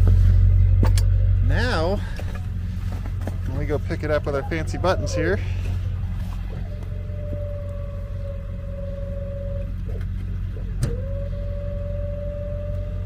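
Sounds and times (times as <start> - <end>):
truck engine running: 0.0 - 13.0
hydraulic whine: 4.0 - 13.0.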